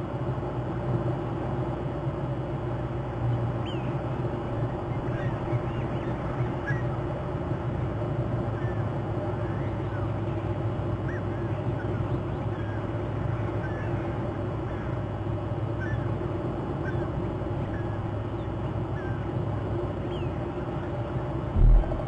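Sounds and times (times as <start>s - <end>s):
steady low drone: 21.2s - 22.0s.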